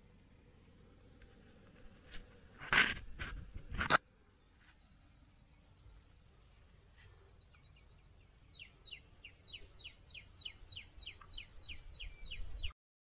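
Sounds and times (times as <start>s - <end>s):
low steady rumble: 0.0s - 12.7s
bird chirping rapidly: 7.4s - 12.7s.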